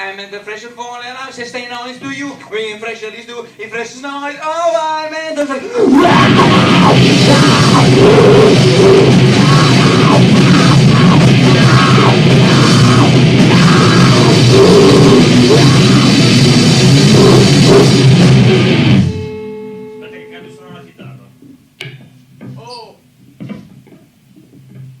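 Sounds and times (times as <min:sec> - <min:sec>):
distorted noise rock band: 0:05.6 - 0:19.8.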